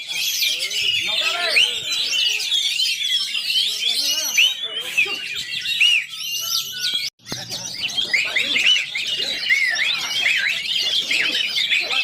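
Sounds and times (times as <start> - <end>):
caged songbirds singing: 0.0 - 12.0.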